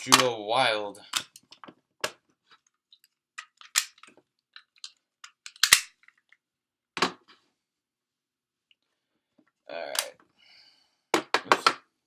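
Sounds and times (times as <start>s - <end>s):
plastic toy parts clicking: 3.0s - 6.3s.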